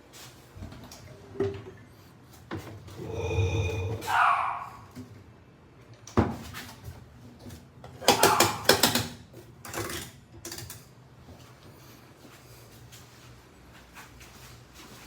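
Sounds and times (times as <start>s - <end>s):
hard objects knocking and rattling: 7.9s - 10.6s.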